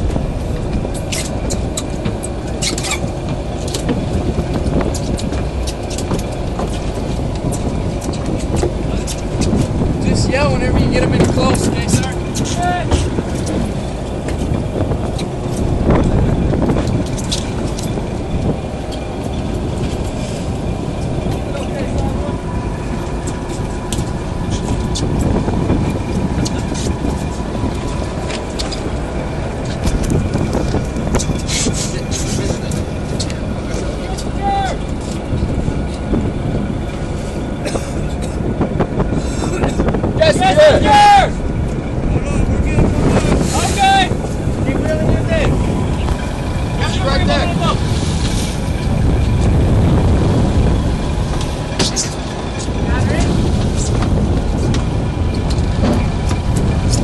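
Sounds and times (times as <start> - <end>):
boat engine running: 0.0 - 57.0
water noise: 0.0 - 57.0
wind: 0.0 - 57.0.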